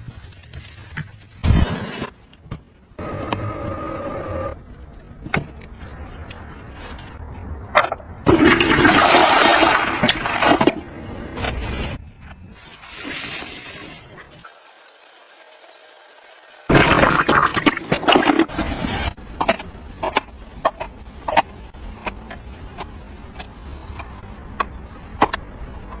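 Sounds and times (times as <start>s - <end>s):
household gadget noise: 7.8s - 12.0s, 16.7s - 19.2s.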